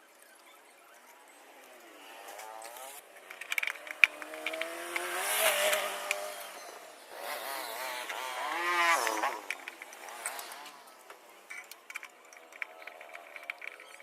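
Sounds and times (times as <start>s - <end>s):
vehicle engine revving: 3.7s - 10.8s.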